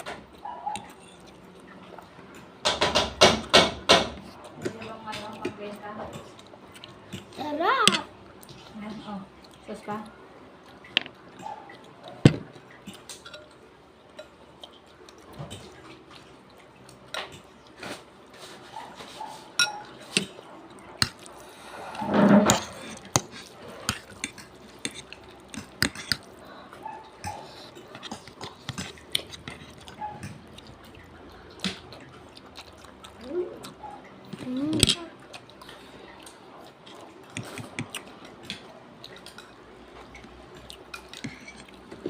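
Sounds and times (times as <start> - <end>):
utensils clinking against a plate: 7.8 - 8.1, 18.8 - 20.4, 22.0 - 30.4, 39.2 - 42.0.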